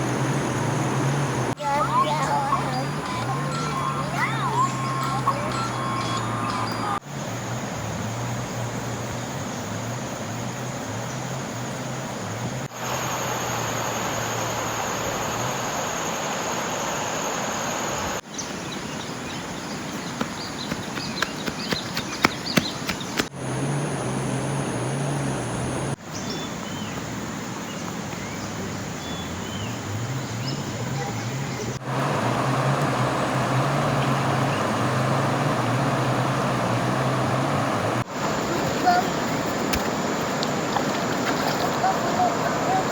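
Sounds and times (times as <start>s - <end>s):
rushing water: 0.0s - 42.9s
low hum: 23.4s - 26.0s.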